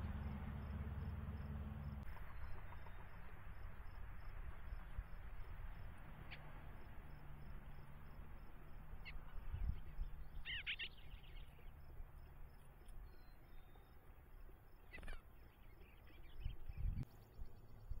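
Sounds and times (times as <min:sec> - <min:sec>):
bird chirping: 0:02.1 - 0:03.3, 0:08.4 - 0:18.0.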